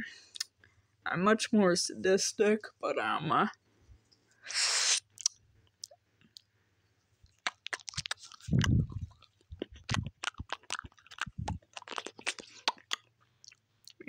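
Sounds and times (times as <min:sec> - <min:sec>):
mouth chewing on rubbery straw: 0:07.2 - 0:14.0
low thuds: 0:08.5 - 0:10.1, 0:11.3 - 0:11.6.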